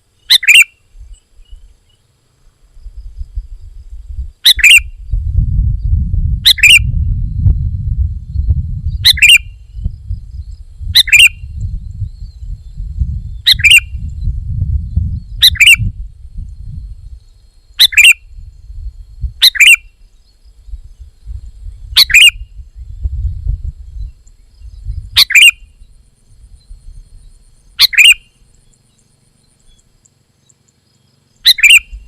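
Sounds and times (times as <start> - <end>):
bird calling: 0.0 - 2.1, 4.4 - 5.0, 6.4 - 7.0, 9.0 - 9.8, 10.9 - 11.5, 13.4 - 14.2, 15.3 - 16.0, 17.4 - 18.5, 19.4 - 20.5, 21.9 - 22.6, 24.0 - 32.0
low rumble: 2.8 - 19.4, 20.5 - 27.8.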